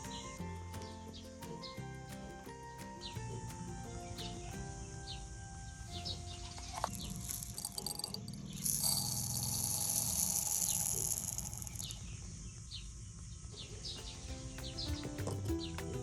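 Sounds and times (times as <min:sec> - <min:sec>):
music with held notes: 0:00.0 - 0:07.6, 0:14.0 - 0:16.0
steady high hiss: 0:00.0 - 0:13.1.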